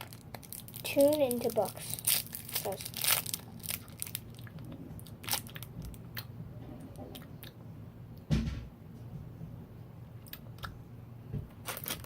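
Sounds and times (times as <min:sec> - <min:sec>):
hard candy crunching in mouth: 0:00.0 - 0:06.3, 0:11.6 - 0:12.0.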